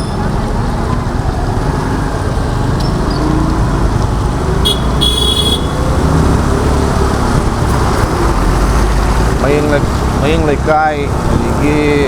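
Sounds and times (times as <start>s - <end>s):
traffic and riding noise: 0.0s - 12.0s
vehicle horn toots: 4.6s - 6.0s.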